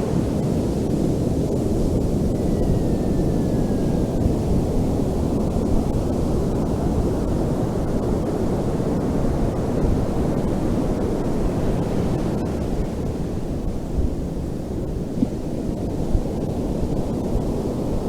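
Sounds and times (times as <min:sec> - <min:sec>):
ocean surf rumble: 0:00.0 - 0:18.0
wind buffeting microphone: 0:00.0 - 0:18.0.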